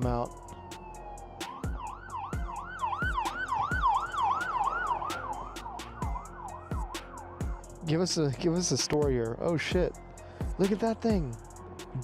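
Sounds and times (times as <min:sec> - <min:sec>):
siren yelping: 0:00.0 - 0:07.7.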